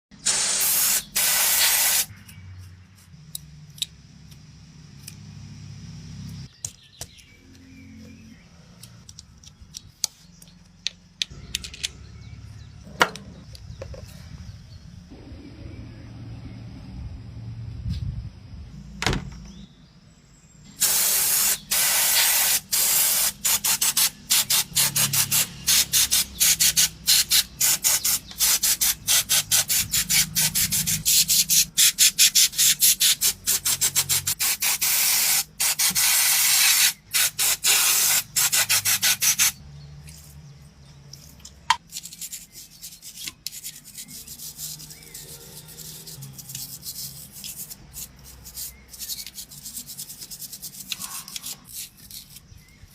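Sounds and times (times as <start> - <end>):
loud hissing spray strokes: 0.2 - 2.2, 20.8 - 39.6
rubbing and scrubbing: 41.2 - 52.7.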